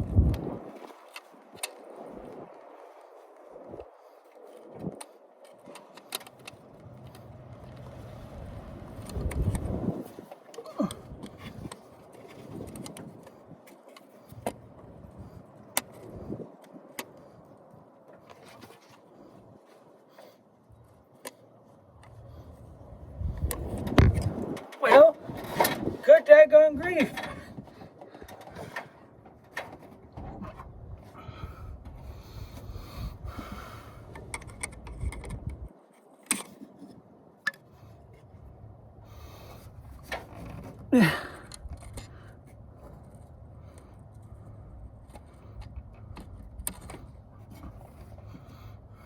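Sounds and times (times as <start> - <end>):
rustling and scraping of parts: 27.0 - 32.8, 39.3 - 49.0
man breathing hard through nose: 31.1 - 34.3, 39.0 - 39.9.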